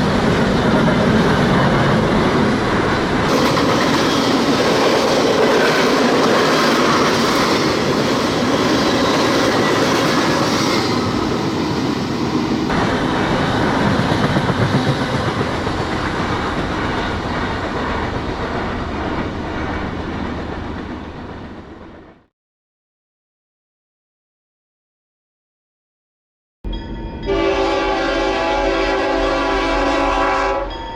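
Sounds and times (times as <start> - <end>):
train rumble: 0.0 - 22.3
train wheels clattering: 3.3 - 21.4.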